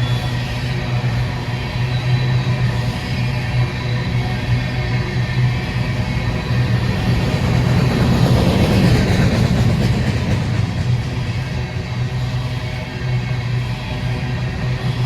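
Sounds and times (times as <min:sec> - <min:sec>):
diesel train engine drone: 0:00.0 - 0:15.0.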